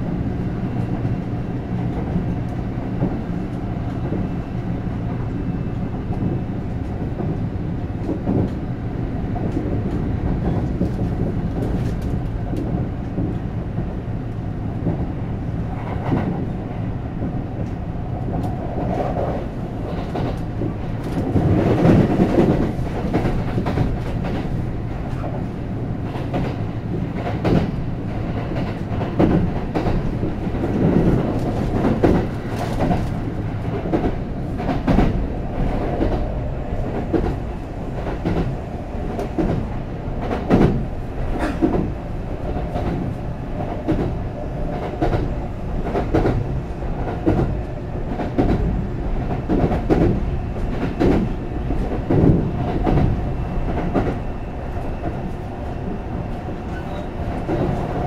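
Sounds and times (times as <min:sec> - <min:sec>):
train wheels rumbling on rail: 0:00.0 - 0:58.0
rail joint clatter: 0:14.8 - 0:58.0.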